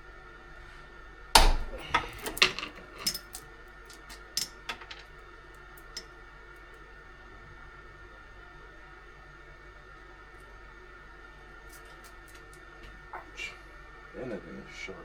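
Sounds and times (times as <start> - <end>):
chainsaw chain clattering: 1.9 - 5.0.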